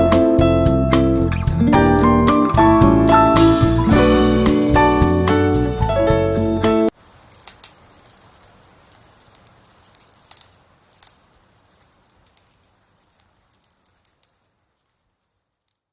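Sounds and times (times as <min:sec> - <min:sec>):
faint hiss: 0:06.9 - 0:15.9
small clicks and ticks: 0:06.9 - 0:15.9.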